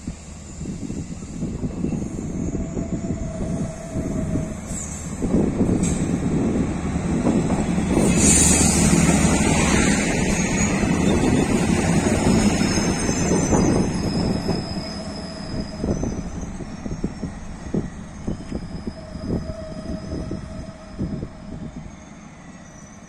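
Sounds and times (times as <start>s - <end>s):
train engine and wheel rumble: 0.0s - 23.0s
high-pitched wheel squeal: 8.0s - 23.0s.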